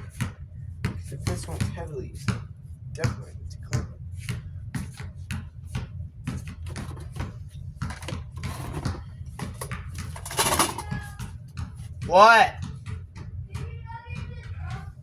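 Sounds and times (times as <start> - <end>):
low steady hum: 0.0 - 15.0
fan parts clicking and knocking: 1.0 - 2.0, 6.3 - 14.9.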